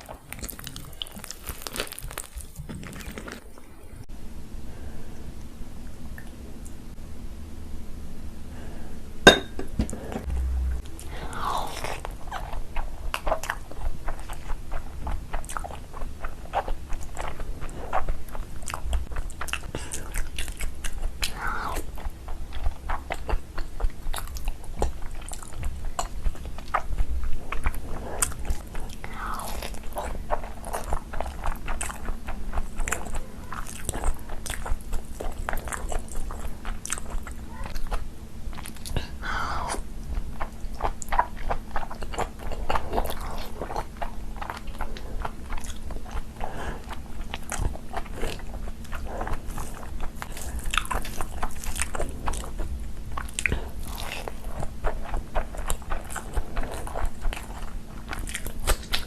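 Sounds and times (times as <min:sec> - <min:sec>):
person chewing crunchy food: 0:00.0 - 0:04.1, 0:09.3 - 0:59.0.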